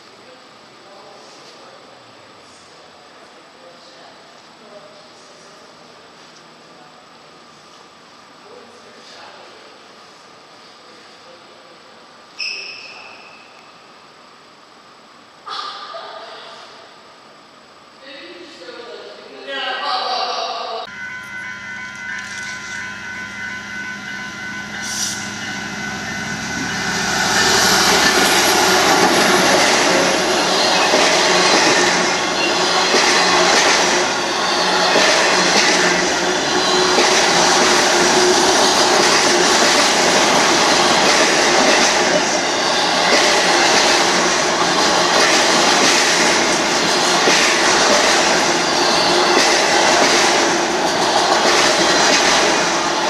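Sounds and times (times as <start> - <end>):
train wheels clattering on rails: 21.2 - 53.0.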